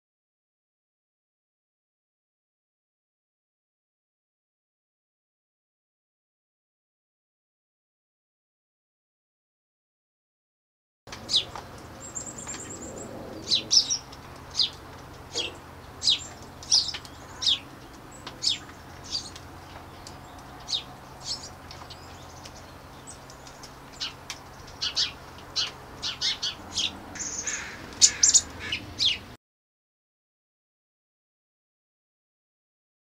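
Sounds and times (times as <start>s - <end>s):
small bird chirping: 11.1s - 29.4s.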